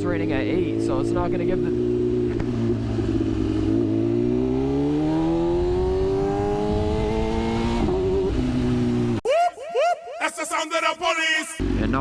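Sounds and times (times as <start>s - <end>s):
motorcycle engine accelerating: 0.0s - 9.2s, 11.6s - 12.0s.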